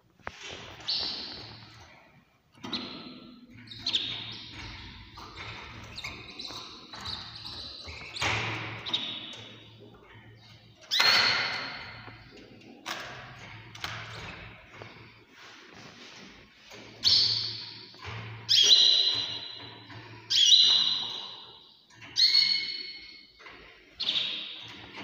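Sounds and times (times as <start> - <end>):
small birds chirping: 0.5 - 13.1, 16.1 - 25.0.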